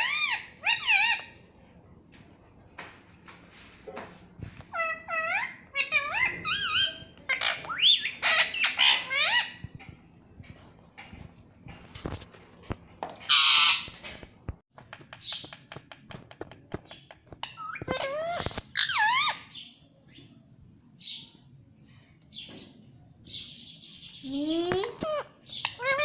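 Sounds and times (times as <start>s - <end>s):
parrot squawk: 0.0s - 1.4s, 4.7s - 9.6s, 13.3s - 14.0s.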